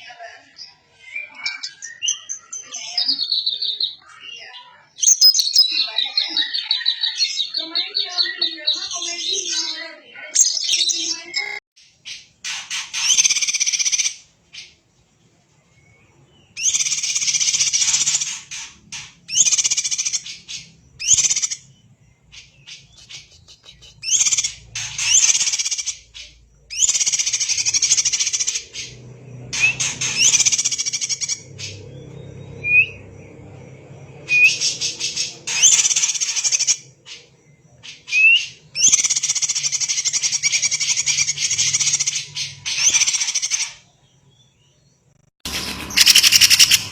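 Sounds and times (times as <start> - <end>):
bird singing rapid song bursts: 1.5 - 14.8, 15.8 - 45.0, 45.7 - 46.9
short rising whistles: 34.2 - 36.0, 45.6 - 46.9.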